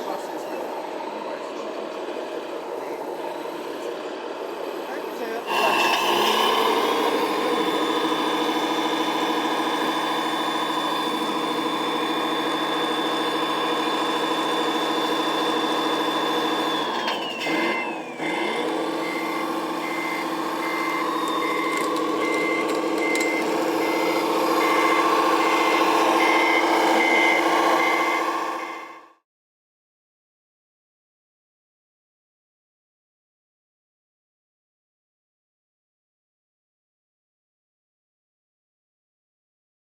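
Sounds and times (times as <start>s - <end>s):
diesel truck engine running: 0.0s - 29.2s
reversing beeper: 4.9s - 29.2s.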